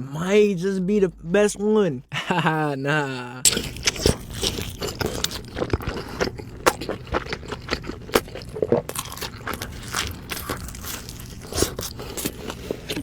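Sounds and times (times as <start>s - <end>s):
crisp chewing crunches: 3.5s - 13.0s.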